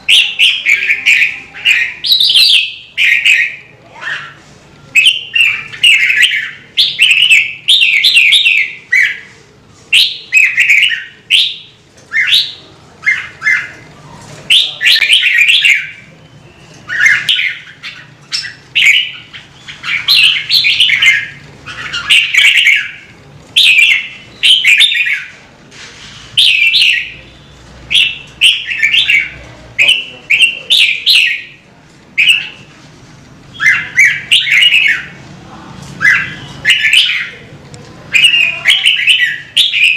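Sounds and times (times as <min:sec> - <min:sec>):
bird singing warbled phrases: 0:00.0 - 0:25.4, 0:26.4 - 0:32.7, 0:33.4 - 0:35.2, 0:35.9 - 0:39.9.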